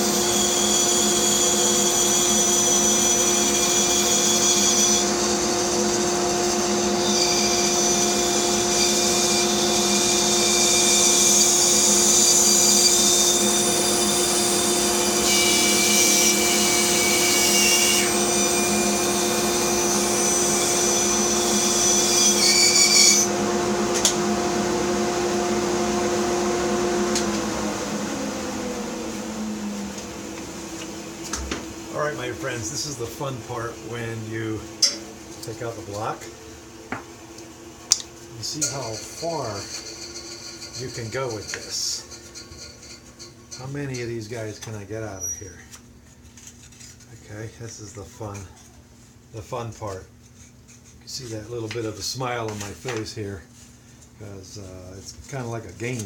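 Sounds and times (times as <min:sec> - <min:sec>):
bandsaw cutting wood: 0:00.0 - 0:30.1, 0:30.7 - 0:36.3, 0:38.4 - 0:44.5
bandsaw motor hum: 0:00.0 - 0:48.6.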